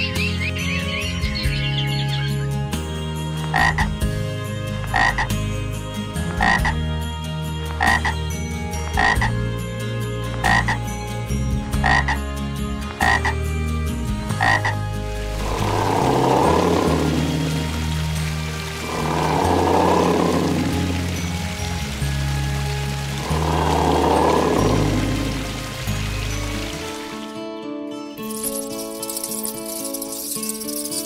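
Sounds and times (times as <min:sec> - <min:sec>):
low background music: 0:00.0 - 0:31.0
rushing noise: 0:15.2 - 0:27.0.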